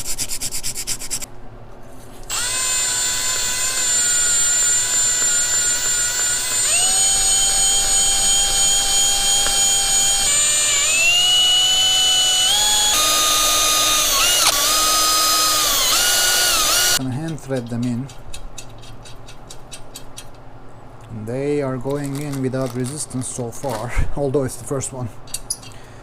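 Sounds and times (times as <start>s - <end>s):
small electric motor whining: 2.3s - 17.0s.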